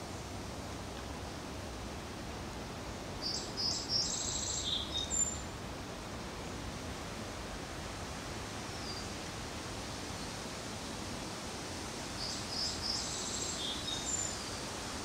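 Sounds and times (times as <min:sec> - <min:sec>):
steady outdoor hiss: 0:00.0 - 0:15.0
songbird singing: 0:03.2 - 0:05.5, 0:08.7 - 0:09.1, 0:12.2 - 0:14.7.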